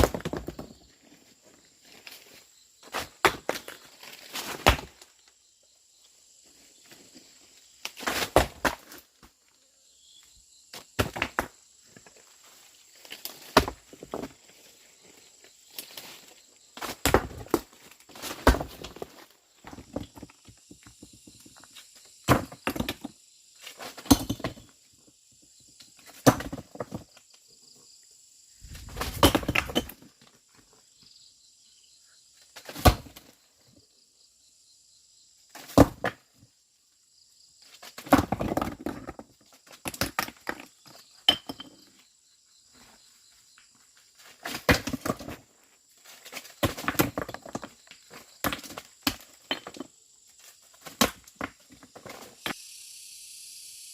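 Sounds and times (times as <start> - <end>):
high insect drone: 26.8 - 38.0, 47.7 - 53.9
hard objects knocking and scraping: 38.0 - 41.9, 46.4 - 50.0.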